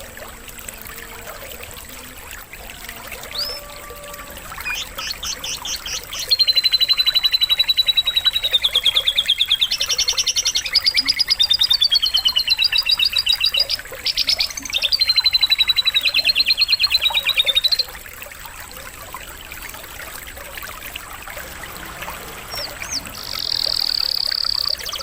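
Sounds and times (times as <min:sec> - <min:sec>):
faint running water: 0:00.0 - 0:25.0
canary singing trills: 0:03.1 - 0:18.0, 0:22.2 - 0:25.0.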